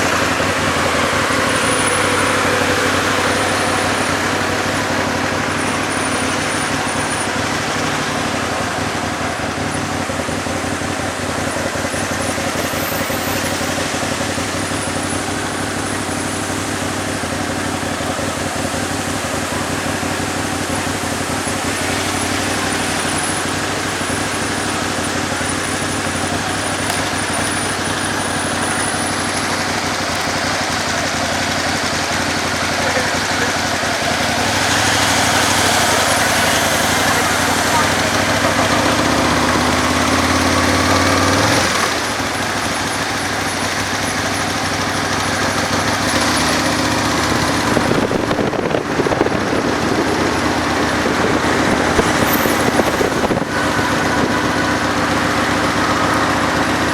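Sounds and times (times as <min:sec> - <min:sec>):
motorcycle engine running: 0:00.0 - 0:56.9
traffic: 0:00.0 - 0:56.9
rushing wind: 0:45.0 - 0:56.9.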